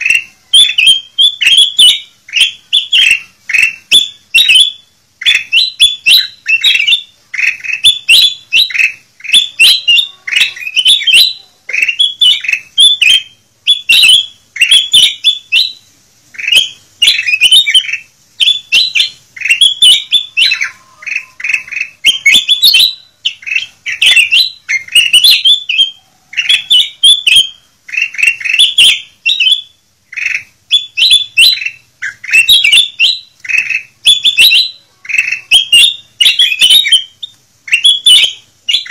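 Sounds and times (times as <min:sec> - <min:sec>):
bulbul chirping song: 0:00.0 - 0:38.9.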